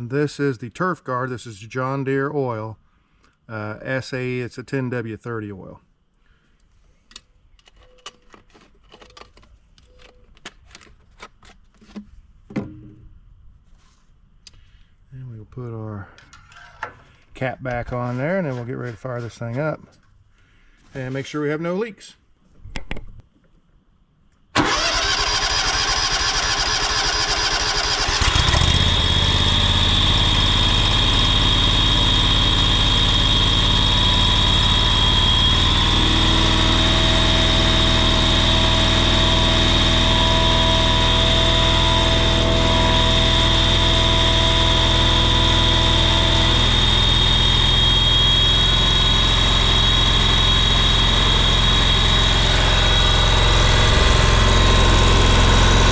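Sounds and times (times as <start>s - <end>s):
mower engine cranking: 24.6s - 55.9s
mower engine running with whine: 24.6s - 55.9s.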